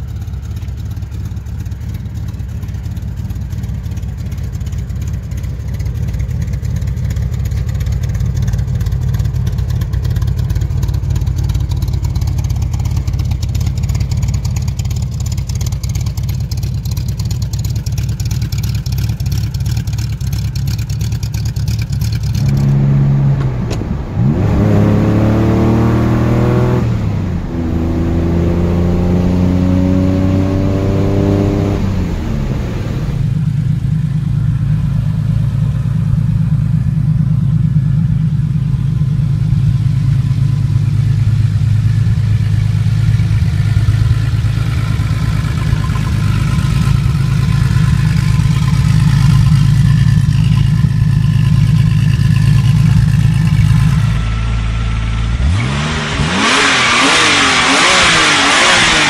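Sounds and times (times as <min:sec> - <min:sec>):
car engine accelerating through gears: 0:22.1 - 0:33.9, 0:43.7 - 0:59.0.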